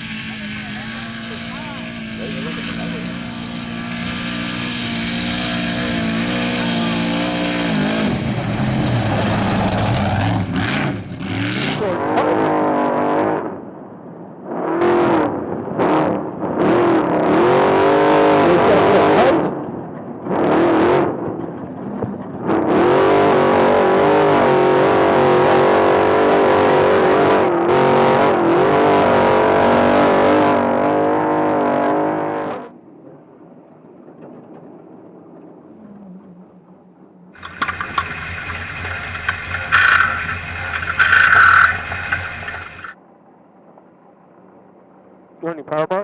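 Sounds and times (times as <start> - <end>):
truck engine revving: 0.0 - 13.1, 22.7 - 32.6, 37.4 - 43.0.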